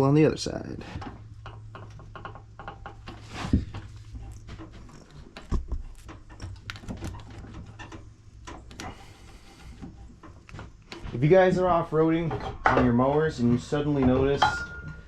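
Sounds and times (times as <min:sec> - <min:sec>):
grease gun clicks and knocks: 0:01.0 - 0:09.0.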